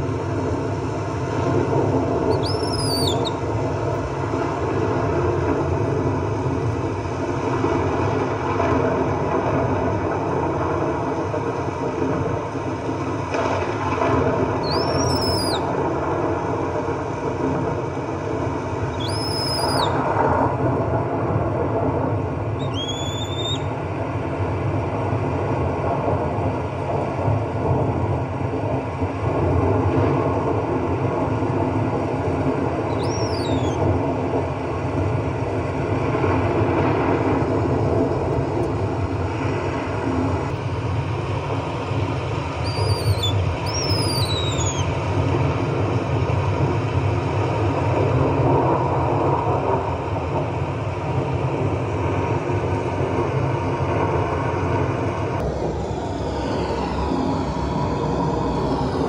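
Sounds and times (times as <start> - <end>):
baby monkey squealing: 2.3 - 3.4, 14.6 - 15.6, 18.9 - 20.0, 22.6 - 23.7, 32.9 - 33.8, 42.6 - 44.9.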